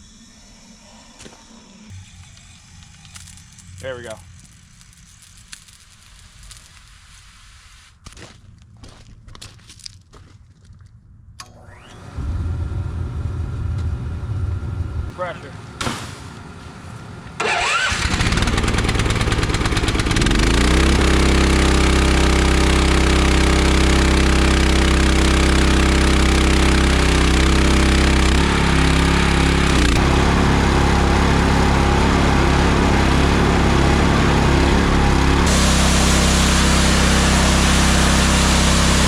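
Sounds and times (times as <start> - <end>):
pressure washer engine running: 17.4 - 39.0.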